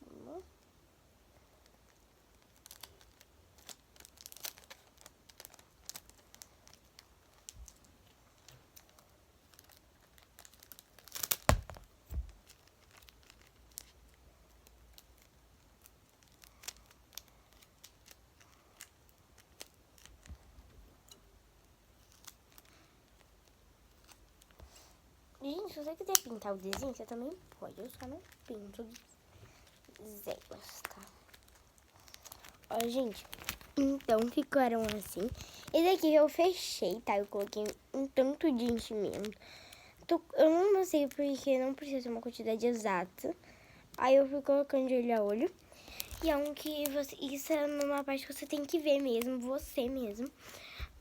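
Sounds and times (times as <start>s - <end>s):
paper and plastic crinkling: 1.6s - 43.4s, 44.0s - 51.0s
loud tearing rustle with knock: 9.5s - 13.9s
sticky tape pulled and torn: 9.5s - 14.1s, 26.0s - 27.0s.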